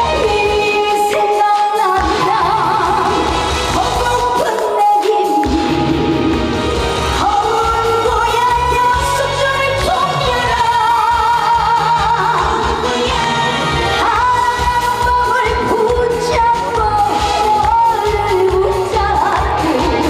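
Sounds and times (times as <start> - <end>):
live band music: 0.0 - 20.0.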